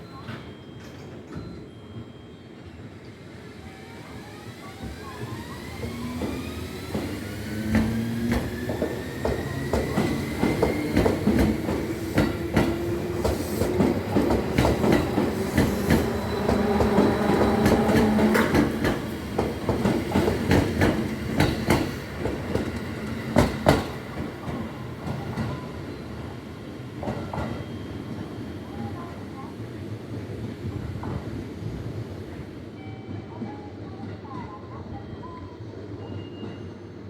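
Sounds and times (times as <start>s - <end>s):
train wheels clacking over joints: 5.8s - 25.6s.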